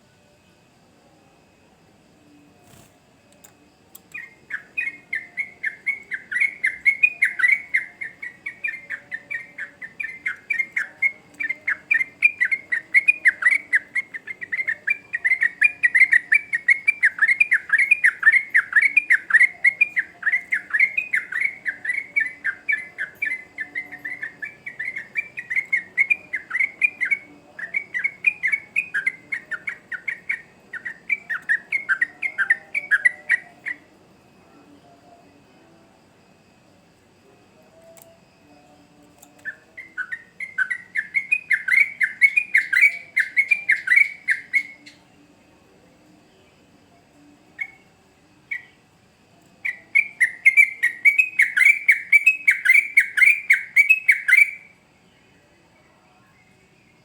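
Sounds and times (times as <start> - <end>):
bird singing rapid notes: 4.0 - 33.8, 39.3 - 45.0, 49.6 - 54.7.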